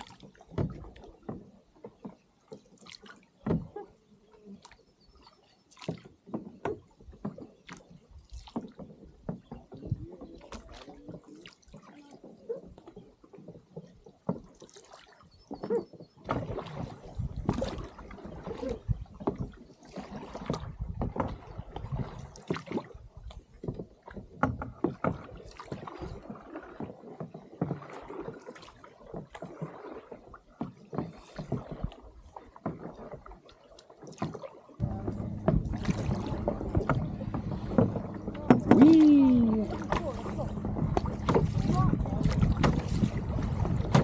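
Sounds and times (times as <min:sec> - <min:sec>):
paddle splashing water: 0:00.0 - 0:44.0
knocks against canoe hull: 0:39.8 - 0:44.0.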